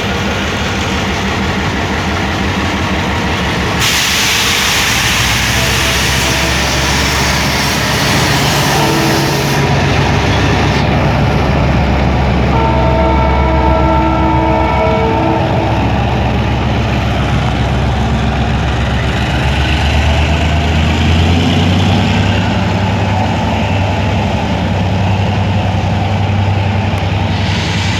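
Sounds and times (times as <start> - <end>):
diesel train engine drone: 0.0 - 27.9
train horn: 3.8 - 9.7, 12.5 - 16.3.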